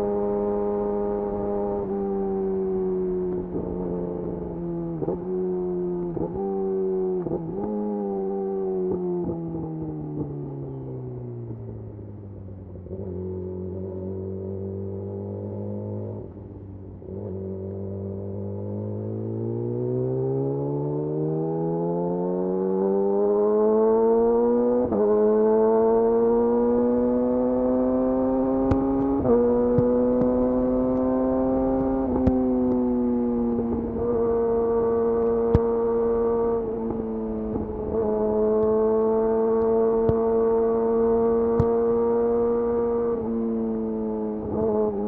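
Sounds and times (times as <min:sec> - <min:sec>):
motorcycle engine revving: 0:17.1 - 0:45.0.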